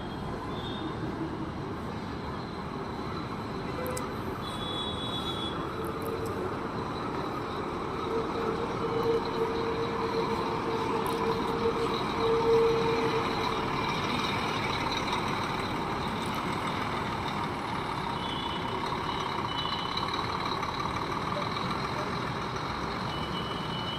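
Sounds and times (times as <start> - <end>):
coach engine and road noise: 0.0 - 23.9.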